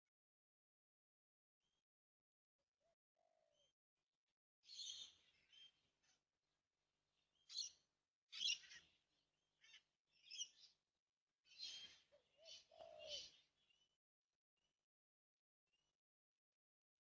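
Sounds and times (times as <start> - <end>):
scratchy bird calls and chirps: 8.4 - 8.9, 11.5 - 13.5.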